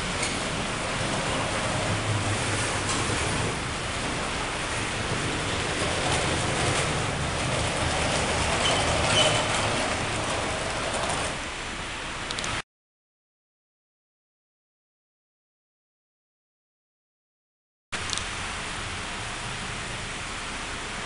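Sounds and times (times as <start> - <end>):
train rumbling along track: 0.0 - 12.4
high squeal: 8.5 - 10.0.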